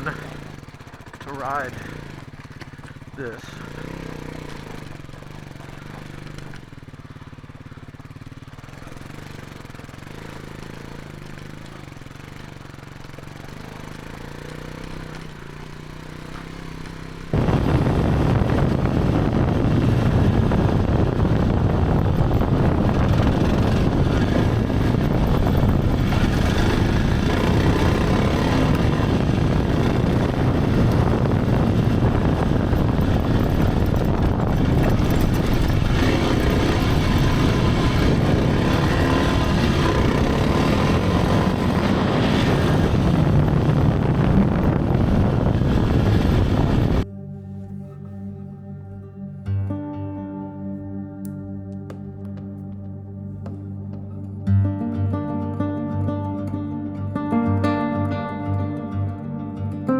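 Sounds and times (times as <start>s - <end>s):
dirt bike engine idling: 0.0s - 48.0s
motorbike riding roar: 0.0s - 49.3s, 50.4s - 59.9s
rushing air: 17.3s - 47.0s.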